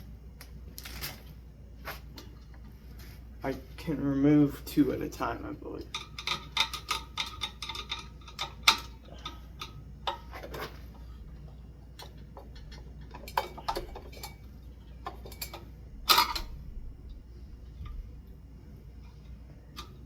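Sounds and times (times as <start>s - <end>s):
metal clatter: 12.0s - 16.8s.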